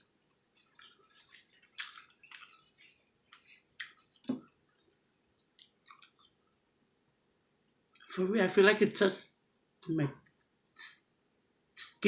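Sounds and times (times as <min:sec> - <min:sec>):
wet chewing and mouth smacks: 0:00.0 - 0:06.6.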